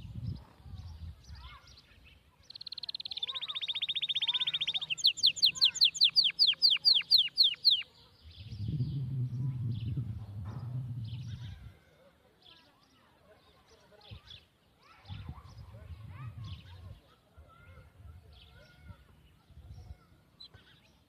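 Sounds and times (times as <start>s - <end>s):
soft bird chirps: 0.0s - 21.0s
songbird trilling and whistling: 2.5s - 8.9s
low rumbling noise: 8.3s - 11.9s.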